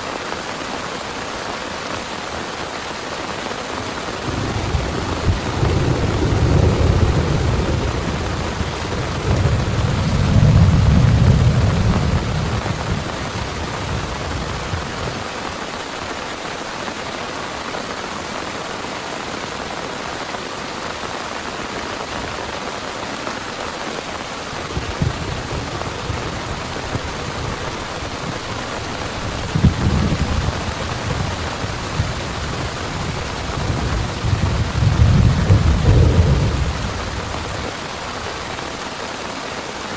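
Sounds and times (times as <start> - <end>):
heavy rain: 0.0 - 39.9
thunder rumbling: 4.2 - 15.6, 24.5 - 38.8.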